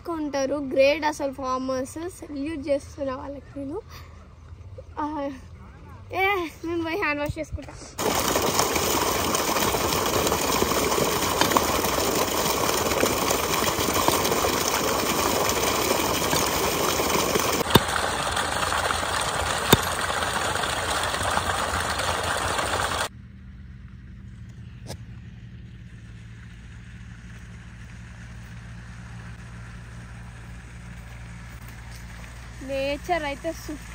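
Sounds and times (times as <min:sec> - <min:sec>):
water gushing from a pipe: 0:08.0 - 0:23.1, 0:26.1 - 0:33.9.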